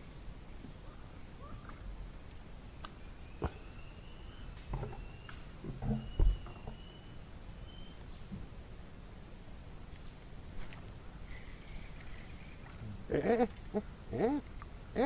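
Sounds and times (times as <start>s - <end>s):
faint whistle-like tones: 2.9s - 13.0s
knocks and thumps: 5.6s - 6.8s.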